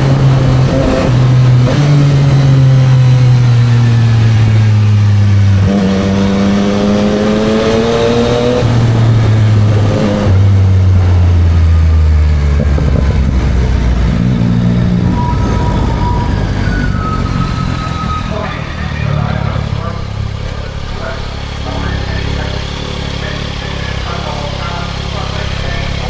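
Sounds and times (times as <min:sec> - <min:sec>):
wind noise: 0:00.0 - 0:20.3
motorcycle engine accelerating: 0:00.0 - 0:26.0
road noise: 0:00.0 - 0:26.0.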